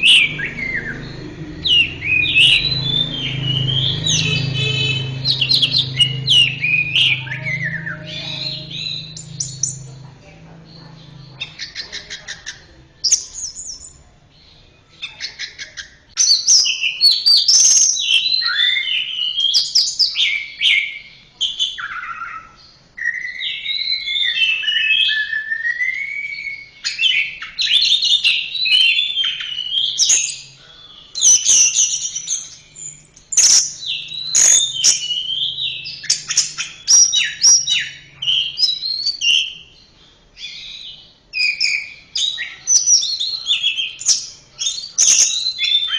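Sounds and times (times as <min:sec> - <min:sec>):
thrush singing: 0:00.0 - 0:12.8.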